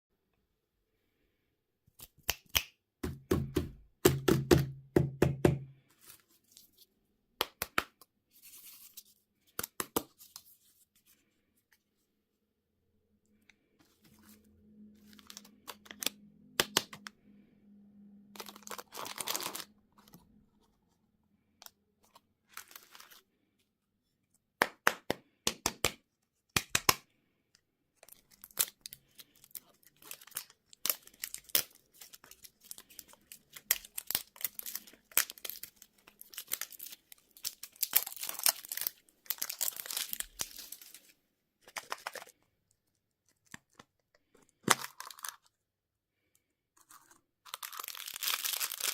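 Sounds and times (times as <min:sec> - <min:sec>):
plastic wrappers crinkling and tearing: 0:18.4 - 0:20.2, 0:22.4 - 0:23.2, 0:28.0 - 0:45.5, 0:46.8 - 0:48.9.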